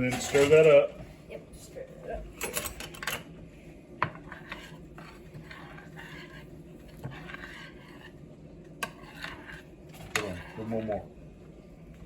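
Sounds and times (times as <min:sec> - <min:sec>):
spoon scraping and squishing: 0:04.0 - 0:11.0.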